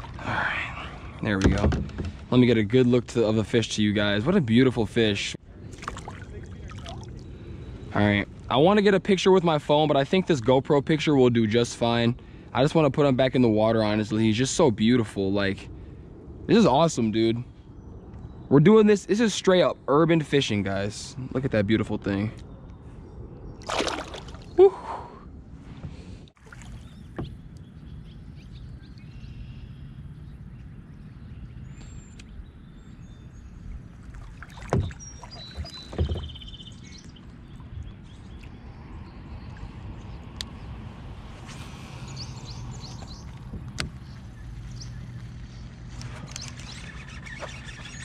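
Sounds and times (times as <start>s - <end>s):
water and kayak hull rumble: 0.0s - 15.6s, 23.6s - 27.6s, 33.2s - 48.0s
birds chirping: 6.0s - 12.8s, 16.4s - 25.1s, 26.6s - 48.0s.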